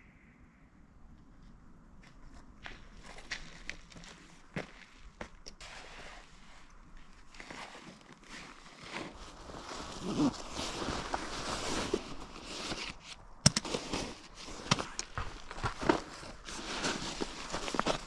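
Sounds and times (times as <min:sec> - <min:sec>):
footsteps crunching: 0:01.3 - 0:18.0
outdoor gear rustling: 0:01.4 - 0:18.0.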